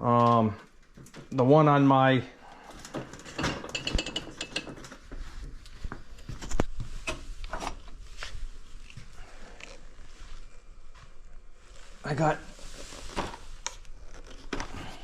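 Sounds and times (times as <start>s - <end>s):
hard objects clicking and knocking: 2.9s - 5.0s.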